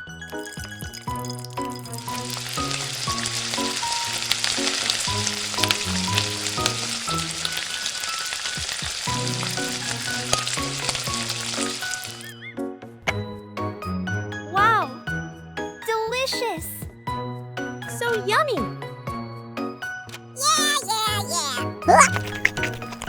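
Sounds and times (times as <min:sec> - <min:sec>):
food sizzling in hot oil: 0:00.2 - 0:12.4, 0:21.4 - 0:23.0.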